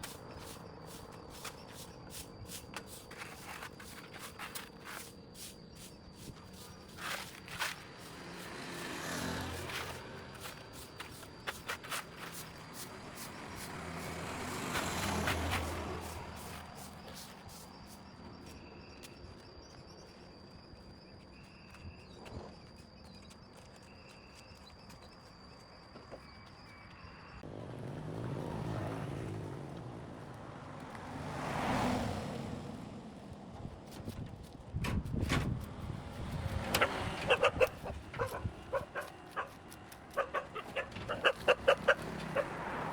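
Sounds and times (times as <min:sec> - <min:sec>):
road vehicles passing: 0:06.3 - 0:19.6, 0:27.1 - 0:42.9.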